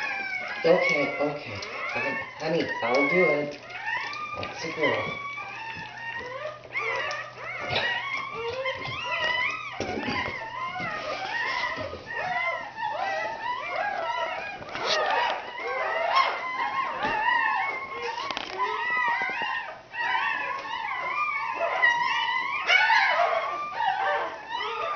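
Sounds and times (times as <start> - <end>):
puppies crying: 0.0 - 24.9.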